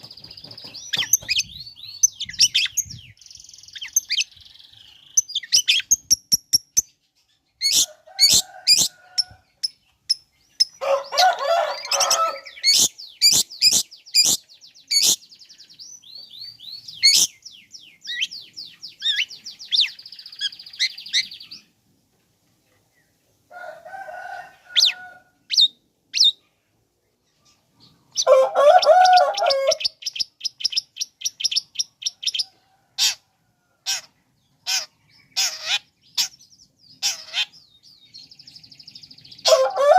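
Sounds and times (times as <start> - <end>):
harsh rasping bird chatter: 0.0 - 7.0, 7.6 - 15.4, 28.1 - 37.7
bird chirping and trilling: 0.0 - 21.7, 24.6 - 26.4, 27.4 - 33.2, 33.8 - 39.9.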